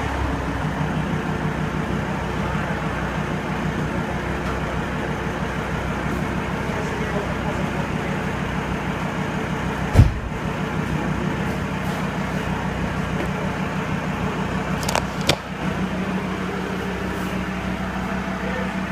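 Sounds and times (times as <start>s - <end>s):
diesel engine idling: 0.0s - 18.9s
exhaust bang: 9.8s - 10.5s.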